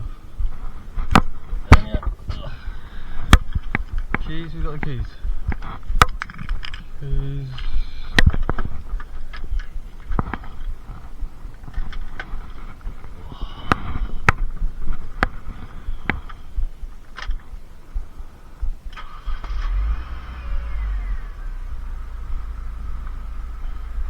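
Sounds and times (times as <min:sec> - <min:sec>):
sharp knocks and clicks: 0:00.5 - 0:02.4, 0:03.2 - 0:19.1
car engine cranking and starting: 0:18.8 - 0:24.0.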